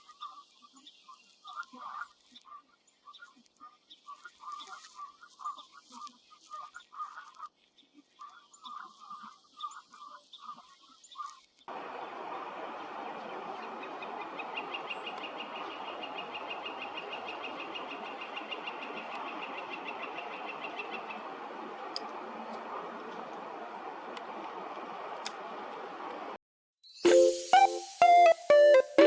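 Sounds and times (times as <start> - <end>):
ducks calling: 11.7 - 23.4
fast high trill: 26.9 - 29.0.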